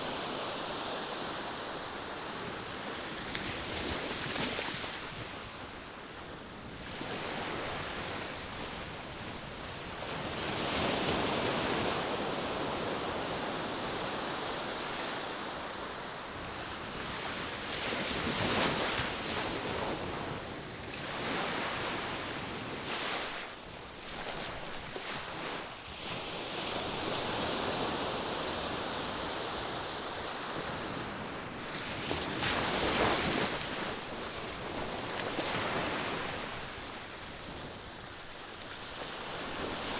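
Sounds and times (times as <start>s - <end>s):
waves breaking on sandy beach: 0.0s - 39.9s.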